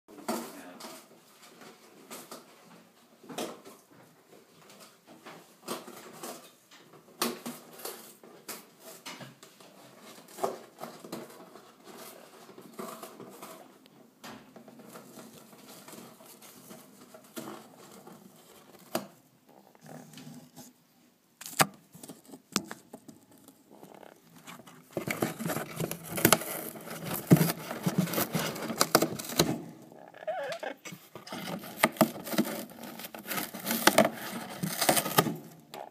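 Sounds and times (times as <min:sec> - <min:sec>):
parrot tearing and crunching box: 0:21.4 - 0:35.9.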